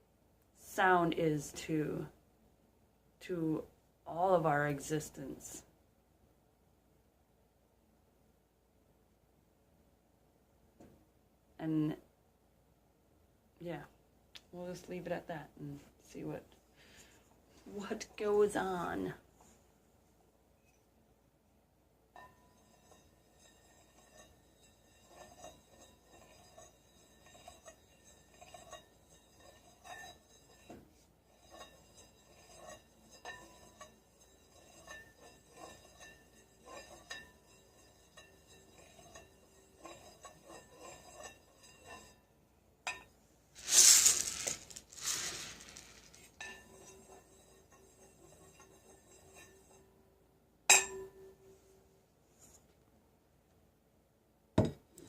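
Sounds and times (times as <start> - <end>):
shaken rattle: 43.6 - 46.3.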